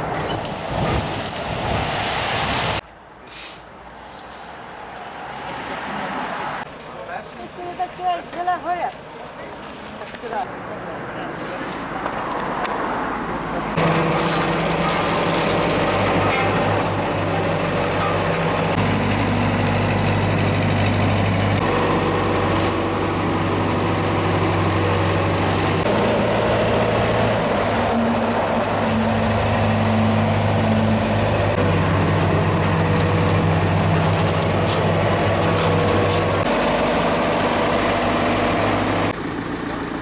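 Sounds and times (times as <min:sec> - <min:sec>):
road-repair machinery engine: 0:13.2 - 0:40.0.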